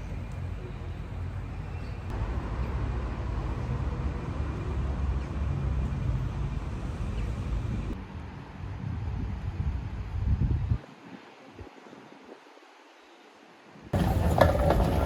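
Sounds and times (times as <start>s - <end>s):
road traffic rumble: 0.0s - 10.1s, 14.0s - 15.0s
city noise: 0.0s - 15.0s.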